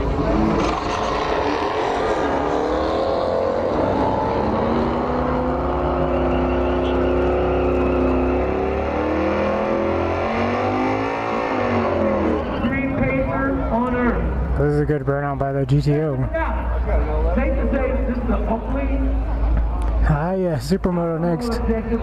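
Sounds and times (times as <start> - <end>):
car engine revving high: 0.0 - 12.8.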